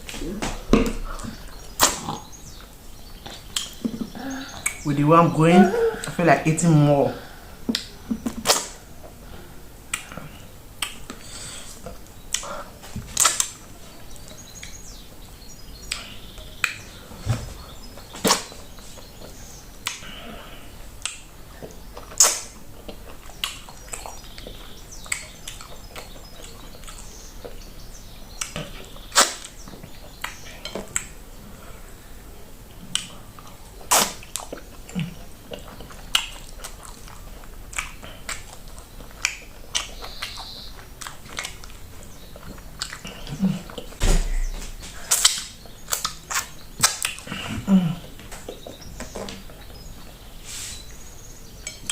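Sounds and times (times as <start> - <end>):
wet mouth smacks and clicks: 3.5 - 3.8, 7.7 - 8.8, 10.8 - 11.2, 22.0 - 22.6, 35.5 - 38.5.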